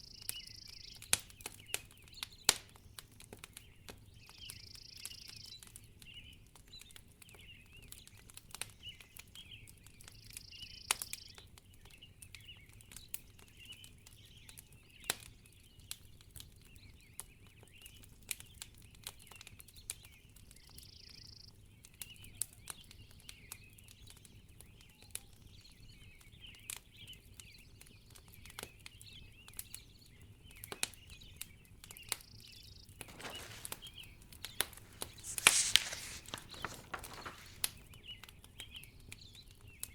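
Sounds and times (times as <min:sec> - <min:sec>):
fireplace crackling: 0:33.1 - 0:37.8.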